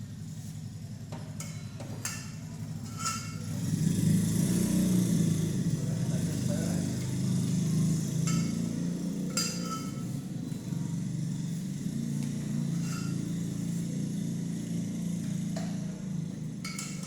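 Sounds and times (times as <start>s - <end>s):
engine running at low pitch: 0.0s - 17.0s
light metallic clinks: 1.4s - 3.6s, 7.1s - 10.6s, 12.3s - 13.7s, 16.6s - 17.0s.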